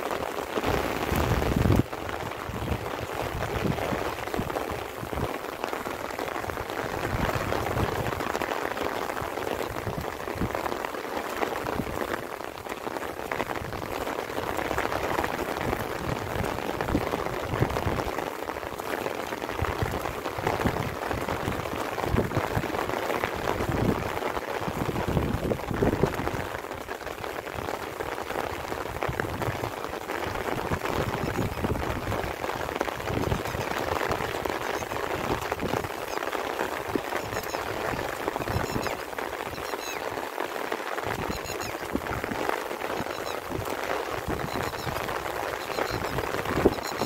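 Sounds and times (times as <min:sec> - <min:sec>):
light rain pattering: 0:00.0 - 0:47.0.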